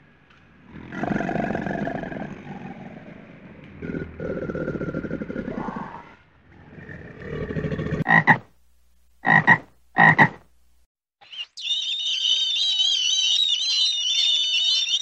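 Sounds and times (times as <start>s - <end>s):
toad croaking: 8.0s - 8.5s, 9.2s - 10.4s.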